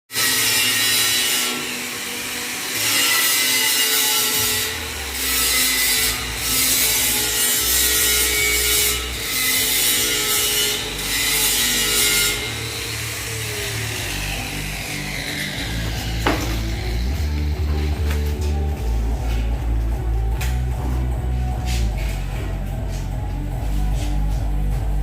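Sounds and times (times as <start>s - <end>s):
rushing scraping drum noise: 15.6s - 20.0s.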